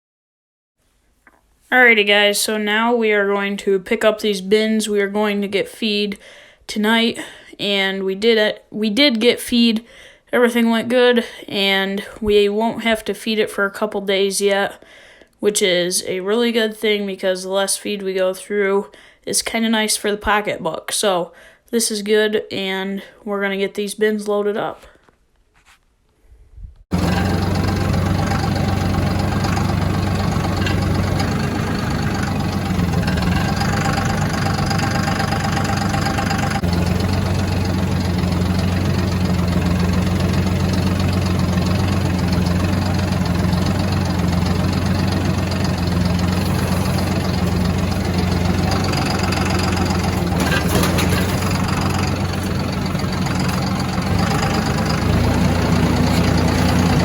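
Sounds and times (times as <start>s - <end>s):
vehicle engine running: 26.9s - 57.0s.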